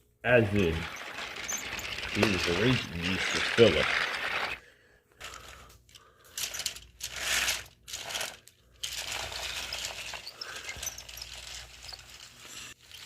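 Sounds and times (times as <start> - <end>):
toy railway trucks rattling: 0.4 - 4.6, 5.2 - 13.0.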